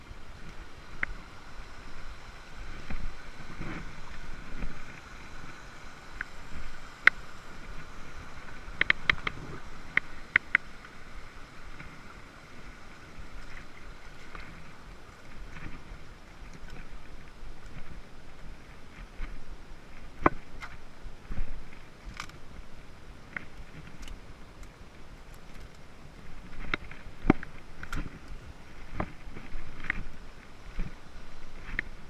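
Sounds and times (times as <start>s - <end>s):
campfire crackling and popping: 2.6s - 12.2s, 20.0s - 32.0s.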